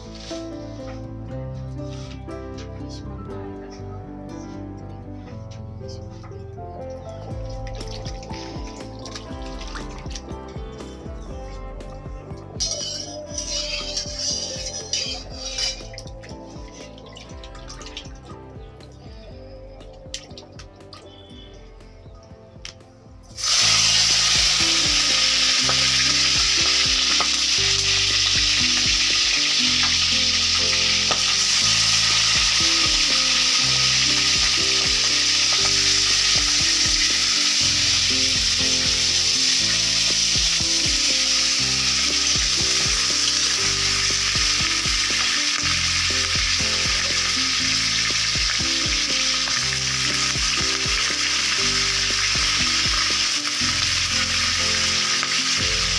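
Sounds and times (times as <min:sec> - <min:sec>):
chicken frying in hot oil: 0:07.1 - 0:11.3, 0:12.6 - 0:18.4, 0:23.4 - 0:55.9.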